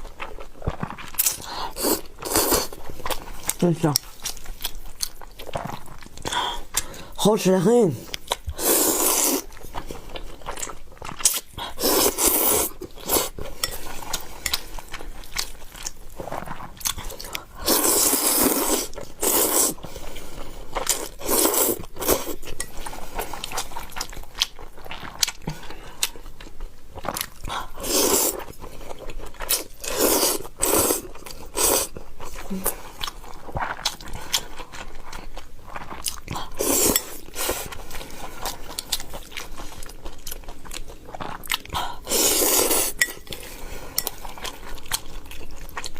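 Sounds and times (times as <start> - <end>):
person chewing food: 0.0 - 45.9.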